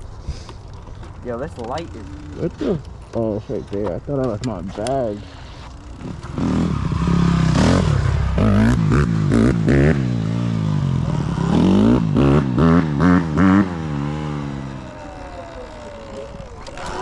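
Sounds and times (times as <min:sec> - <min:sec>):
dirt bike engine revving: 0:01.8 - 0:02.8, 0:05.5 - 0:17.0.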